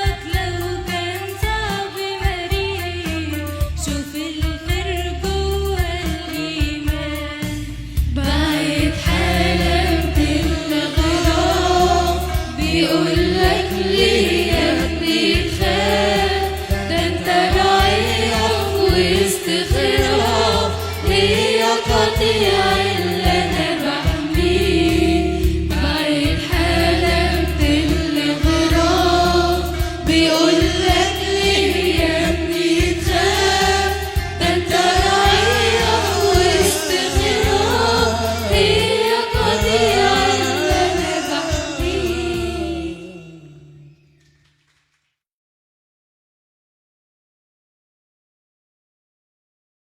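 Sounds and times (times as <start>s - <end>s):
choir singing a hymn: 8.2s - 43.9s.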